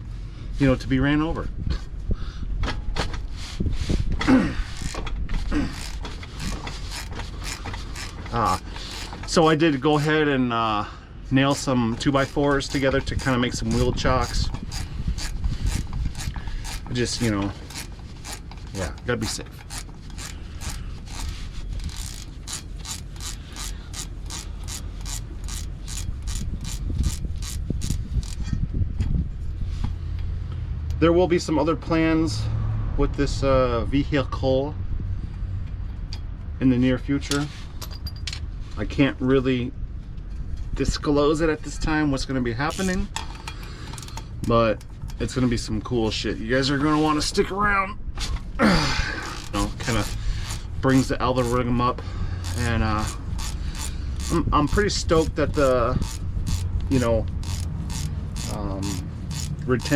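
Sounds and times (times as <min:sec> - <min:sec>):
short falling creaks: 0:04.2 - 0:09.6, 0:49.0 - 0:50.7
hand tools clicking on bolts: 0:04.7 - 0:10.2, 0:11.5 - 0:28.5, 0:42.7 - 0:44.3, 0:49.2 - 0:51.8, 0:52.4 - 0:59.9.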